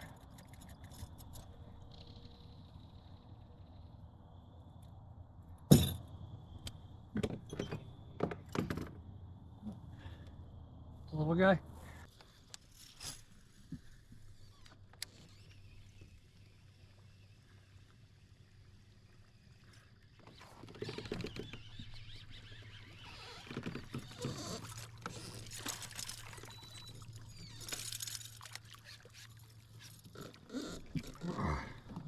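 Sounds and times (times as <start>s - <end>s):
water splashing around kayak: 22.8s - 32.0s.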